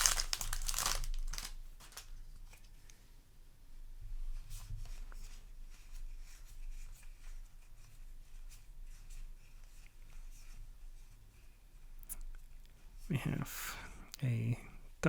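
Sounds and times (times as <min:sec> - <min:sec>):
trading cards swishing: 0:00.0 - 0:02.1.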